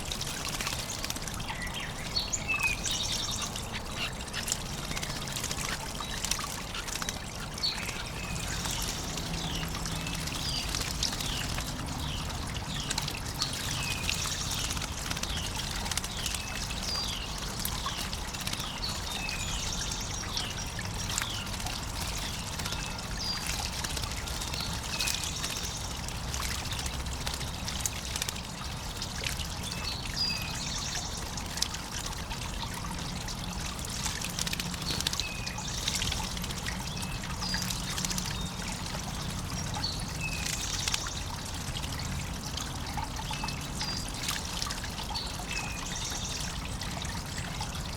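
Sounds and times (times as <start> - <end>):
water trickling: 0.0 - 47.9
songbirds chirping: 33.6 - 47.9.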